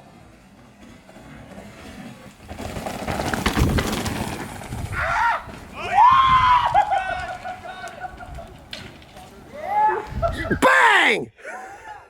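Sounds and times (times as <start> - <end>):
bike tyres crunching on stone: 0.5 - 10.2
spectator shouting: 9.6 - 11.6.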